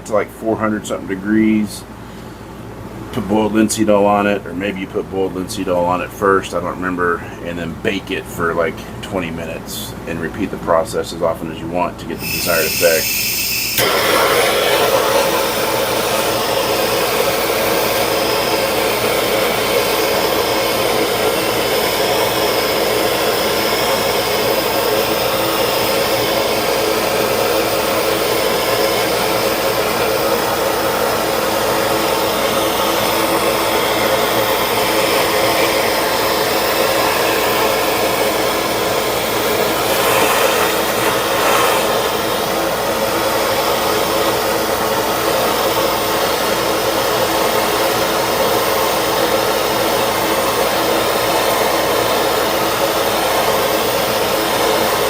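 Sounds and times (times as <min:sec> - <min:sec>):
heat gun blowing air: 0:12.2 - 0:55.0.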